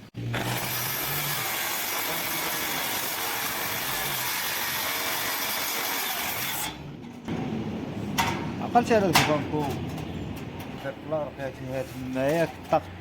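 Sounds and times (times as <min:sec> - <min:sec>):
welding arc hissing: 0:00.2 - 0:06.6.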